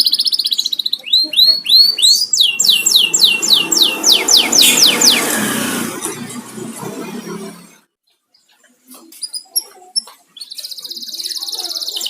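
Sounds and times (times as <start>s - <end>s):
canary singing: 0.0s - 8.6s.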